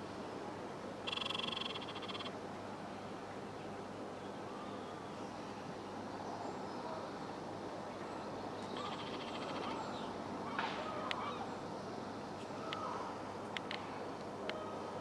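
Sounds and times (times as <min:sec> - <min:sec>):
outdoor background hum: 0:00.0 - 0:15.0
birds chirping: 0:01.1 - 0:02.3.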